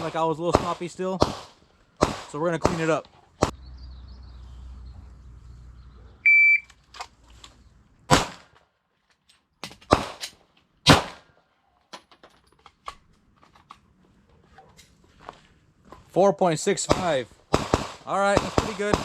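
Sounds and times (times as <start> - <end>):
pistol shots: 0.0 - 3.5, 8.1 - 8.6, 9.9 - 11.2, 16.8 - 19.0
shot timer beep: 6.2 - 6.7.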